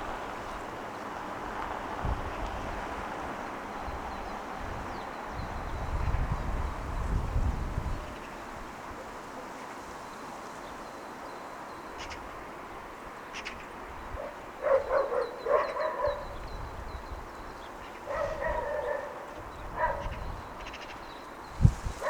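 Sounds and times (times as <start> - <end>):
city ambience hum: 0.0 - 22.0
dog barking: 14.2 - 16.4, 18.1 - 20.2.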